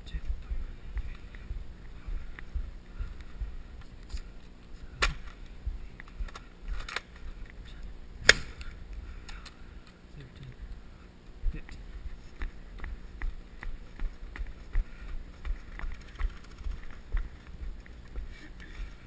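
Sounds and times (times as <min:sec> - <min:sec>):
toy blasters firing snaps: 0:08.2 - 0:08.6.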